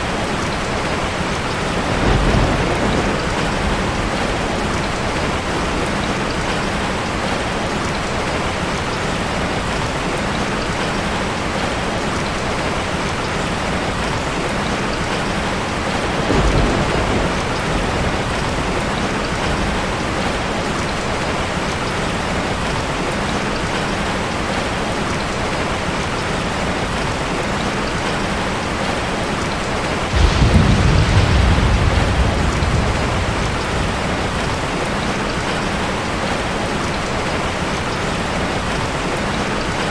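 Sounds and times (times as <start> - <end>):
thunder rumbling: 0.0 - 7.6, 15.8 - 21.3, 30.0 - 37.3
steady rain: 0.0 - 39.9.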